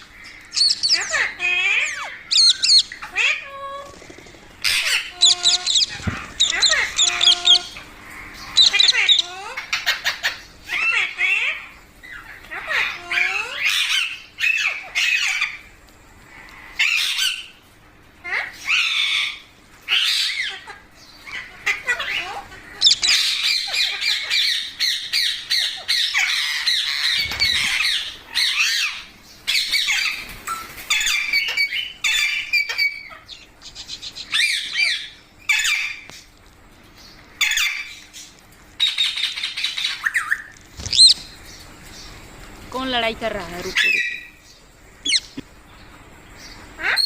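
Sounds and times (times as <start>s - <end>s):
parrots squawking: 0.0s - 15.7s, 18.3s - 36.1s, 37.4s - 38.0s, 38.8s - 41.4s, 43.6s - 44.4s, 45.0s - 45.5s, 46.8s - 47.0s.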